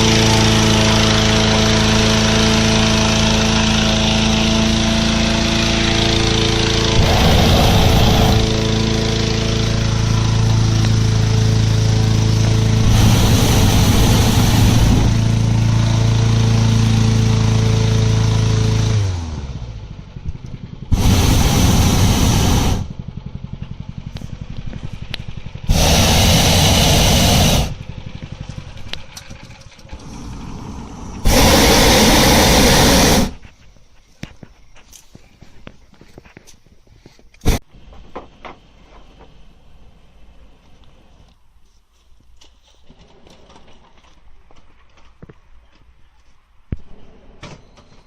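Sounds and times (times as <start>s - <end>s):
propane burner roaring: 0.0s - 19.0s, 20.4s - 23.6s, 24.6s - 27.8s, 28.8s - 33.6s
small engine running: 0.0s - 33.6s.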